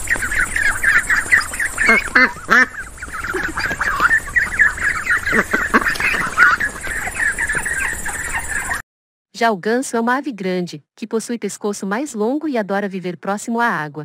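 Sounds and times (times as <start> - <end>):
ducks quacking: 0.0 - 8.8.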